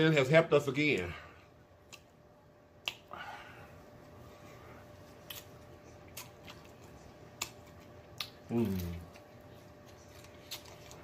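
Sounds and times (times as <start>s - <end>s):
person chewing food: 1.5s - 2.2s, 4.5s - 11.0s.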